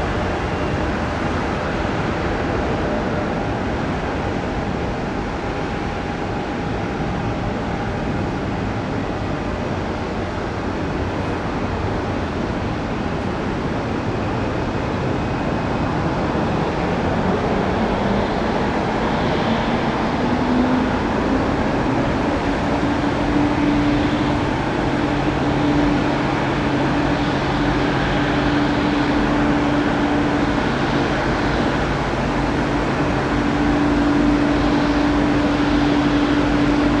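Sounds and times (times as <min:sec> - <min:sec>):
jet engine roar: 0:00.0 - 0:37.0
jet engine whine climbing in pitch: 0:00.0 - 0:37.0.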